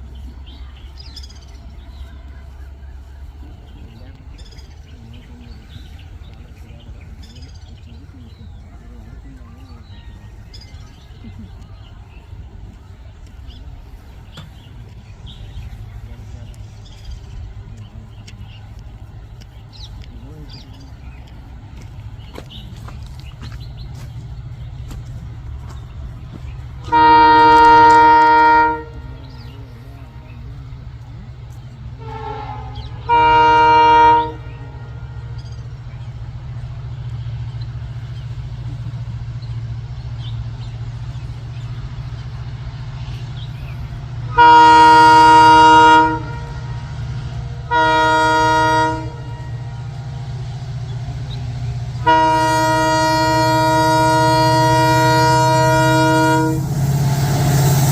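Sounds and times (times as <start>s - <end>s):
train rumbling: 0.0s - 57.9s
train horn blasts: 26.8s - 30.3s, 32.0s - 35.4s, 44.3s - 49.9s, 52.0s - 57.9s.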